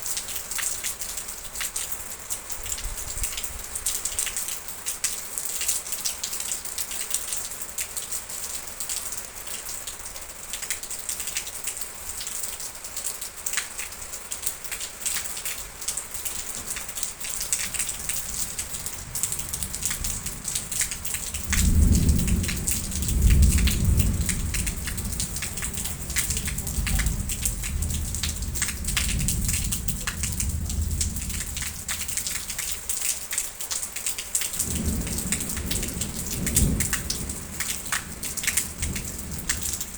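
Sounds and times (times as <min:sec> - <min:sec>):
heavy rain: 0:00.0 - 0:39.9
thunder rumbling: 0:16.0 - 0:33.0, 0:34.6 - 0:39.9.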